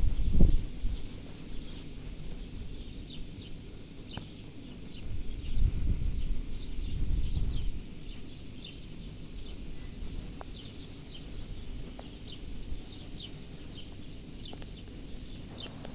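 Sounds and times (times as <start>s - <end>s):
small birds chirping: 0.9s - 15.9s.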